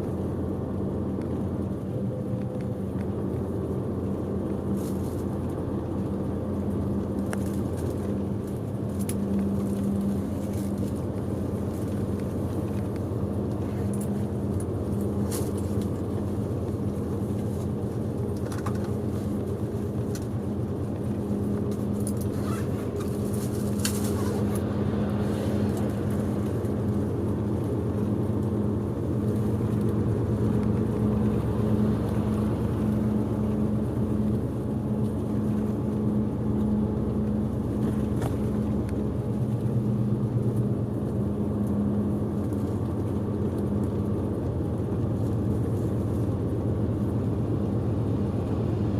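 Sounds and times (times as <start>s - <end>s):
bus engine drone: 0.0s - 48.9s.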